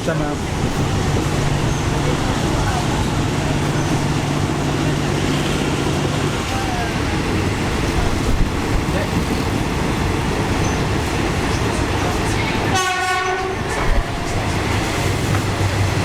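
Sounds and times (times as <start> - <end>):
train rumbling: 0.0 - 16.0
short train horn blast: 12.7 - 14.1.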